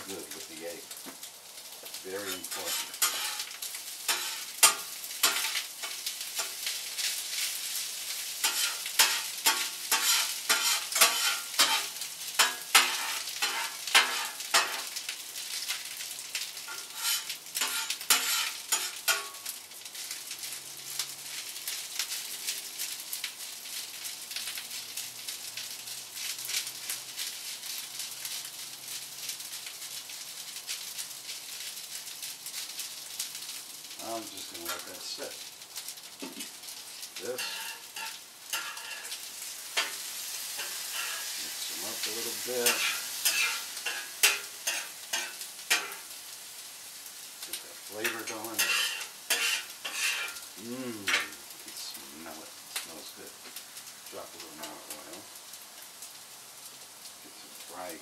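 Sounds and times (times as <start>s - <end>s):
rice and egg sizzling in a pan: 0.0s - 58.0s
scraping strokes in a pan: 2.2s - 15.0s, 16.6s - 20.1s, 37.3s - 46.2s, 48.0s - 51.4s.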